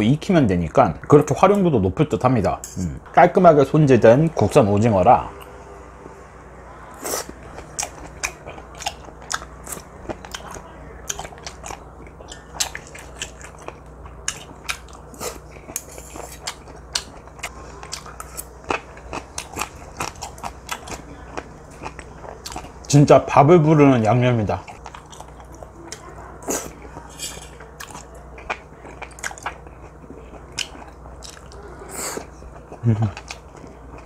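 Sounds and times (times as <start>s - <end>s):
close chewing with wet clicks: 7.3s - 22.9s, 24.7s - 34.0s.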